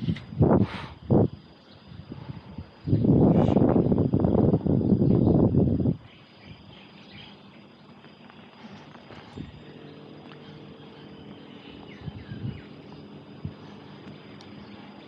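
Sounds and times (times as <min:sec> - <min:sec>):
steady high-pitched tone: 0:00.0 - 0:15.0
bird chirps: 0:06.0 - 0:15.0
vehicle engine humming: 0:07.8 - 0:15.0.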